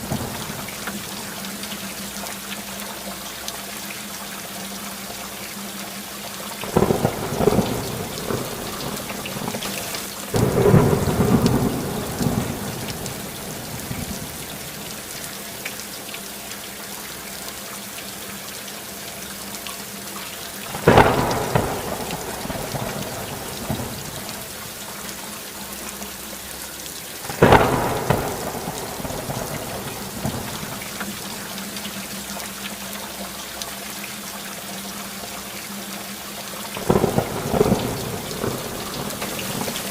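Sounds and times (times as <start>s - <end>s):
thunderclaps rumbling: 0.0s - 0.8s, 6.7s - 15.1s, 20.7s - 24.6s, 27.3s - 31.4s, 36.8s - 39.9s
steady rainfall: 0.0s - 39.9s.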